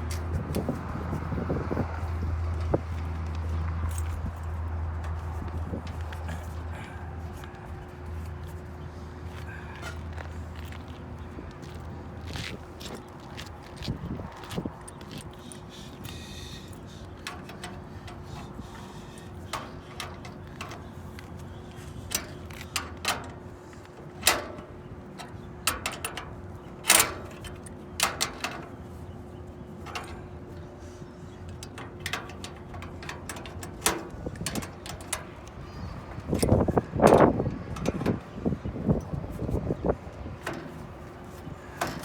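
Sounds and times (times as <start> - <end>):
metallic clicks and knocks of hand tools: 22.1 - 28.7, 31.5 - 38.3.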